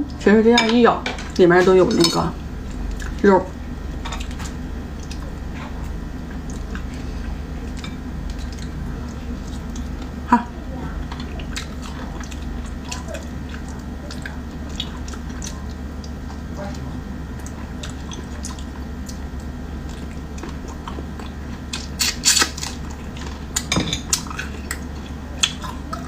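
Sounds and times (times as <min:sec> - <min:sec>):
steady low hum: 0:00.0 - 0:26.0
crabs cracking shells: 0:21.7 - 0:23.0.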